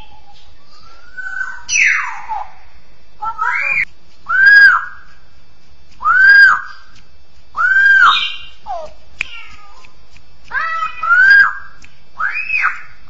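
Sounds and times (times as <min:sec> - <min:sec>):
bird singing whistled phrases: 0:00.0 - 0:02.5, 0:03.4 - 0:05.0, 0:06.0 - 0:07.0, 0:07.6 - 0:08.7, 0:11.0 - 0:13.0.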